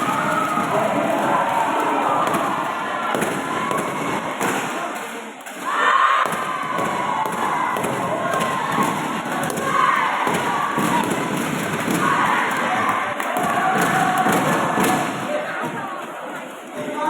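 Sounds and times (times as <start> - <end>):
spectators cheering and shouting: 0.0 - 4.9, 5.6 - 15.8.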